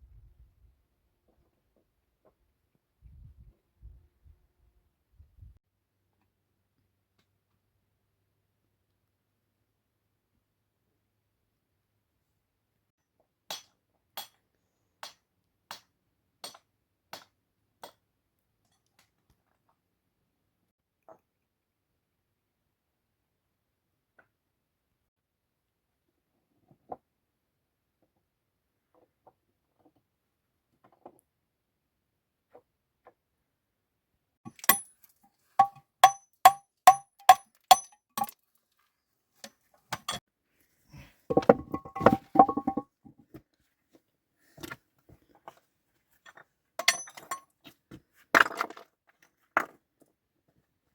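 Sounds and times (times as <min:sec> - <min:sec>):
sharp knocks: 0:41.3 - 0:42.8.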